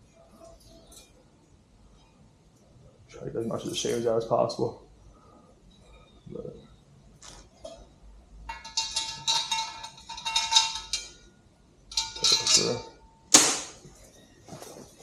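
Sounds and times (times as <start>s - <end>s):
metal parts clinking and scraping: 8.5s - 11.3s, 11.9s - 13.0s
sharp metallic clank: 11.9s - 13.9s.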